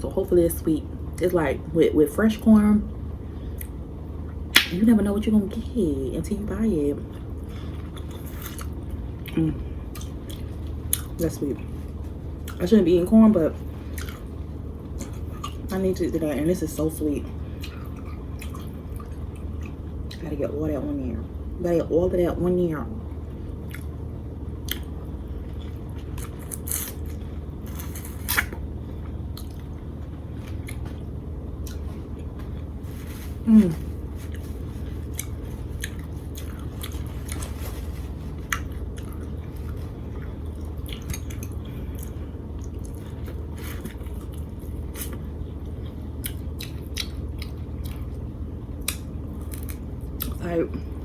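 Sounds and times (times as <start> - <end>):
low hum: 0.0 - 51.0
biting and chewing: 34.3 - 45.2.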